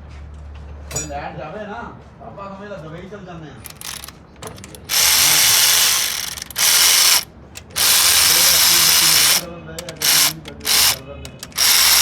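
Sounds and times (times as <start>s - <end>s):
compressed-air tool hissing: 3.7s - 12.0s.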